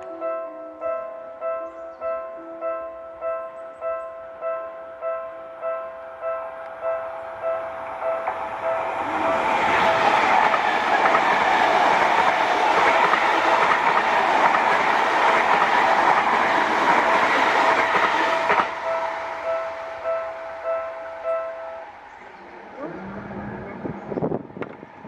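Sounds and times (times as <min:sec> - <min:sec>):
train wheels clattering over rails: 0:07.9 - 0:19.6.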